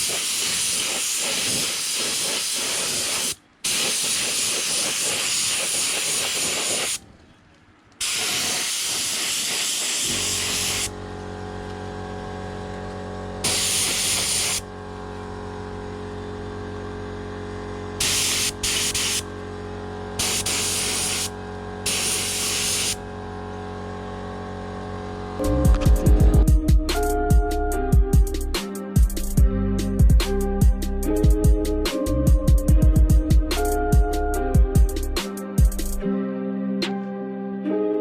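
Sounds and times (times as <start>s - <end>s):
spray paint hissing: 0.0s - 7.0s, 8.0s - 11.0s, 13.4s - 14.7s, 18.0s - 19.3s, 20.2s - 21.3s, 21.9s - 23.0s
steady hum: 8.1s - 28.6s.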